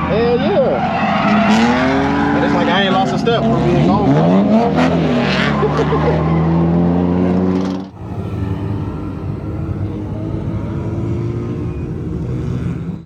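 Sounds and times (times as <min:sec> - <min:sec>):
car engine running: 0:07.8 - 0:13.0.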